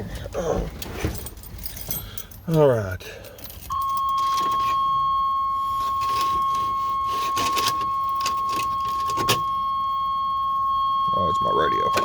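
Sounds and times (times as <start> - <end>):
keys jangling: 0.8 - 4.8
high-pitched warning tone: 3.7 - 12.0.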